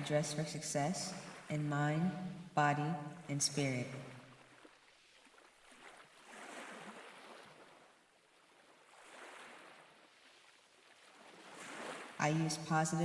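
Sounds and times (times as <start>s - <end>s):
faint ocean waves washing ashore: 0.0s - 13.0s.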